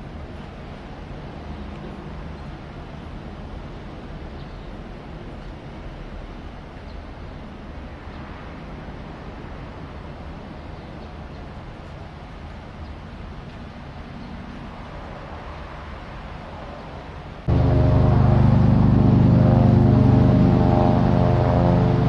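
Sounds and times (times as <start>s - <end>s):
aircraft rumble overhead: 17.4s - 22.0s
low hum: 17.5s - 22.0s.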